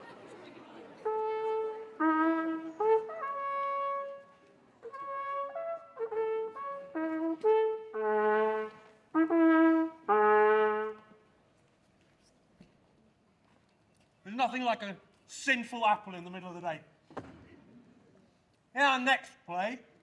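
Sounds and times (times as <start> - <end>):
brass fanfare: 1.0 - 11.1
narration: 14.3 - 16.9, 18.8 - 19.8.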